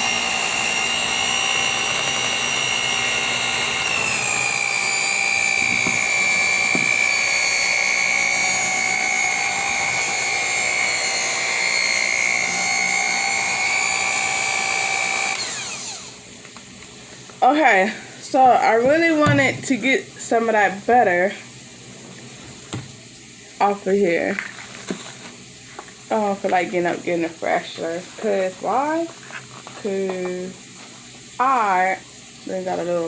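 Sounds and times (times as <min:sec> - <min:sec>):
electric hand mixer whining: 0:00.0 - 0:16.4.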